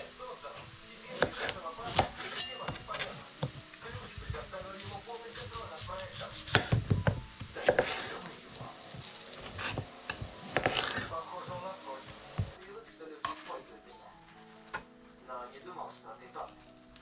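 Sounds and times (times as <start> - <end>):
dishes and utensils clinking: 0.0 - 12.6.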